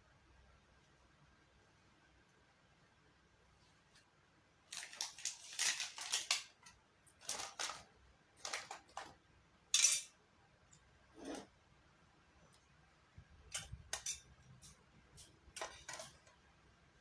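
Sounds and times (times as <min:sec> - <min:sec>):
crackling crunching noises: 0:04.7 - 0:09.0.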